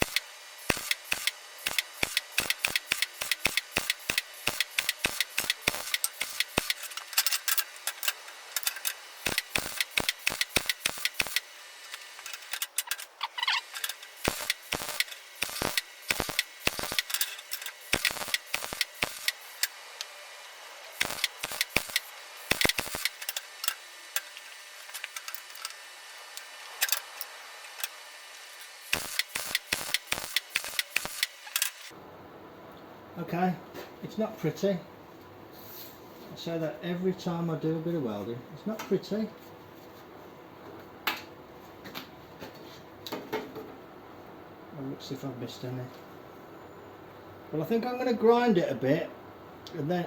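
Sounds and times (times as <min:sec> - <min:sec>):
arc welding crackling: 0:00.0 - 0:31.9.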